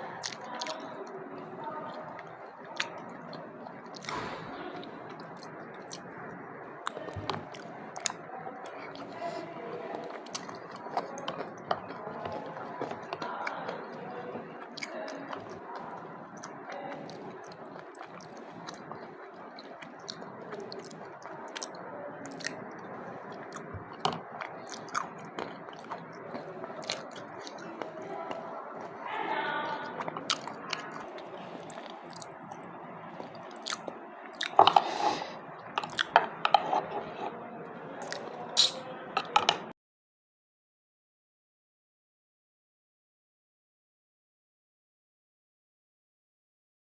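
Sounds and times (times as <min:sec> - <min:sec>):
wet squishing and chewing: 0:00.1 - 0:01.0, 0:01.8 - 0:38.5
spoon clicking against bowl: 0:38.6 - 0:39.6.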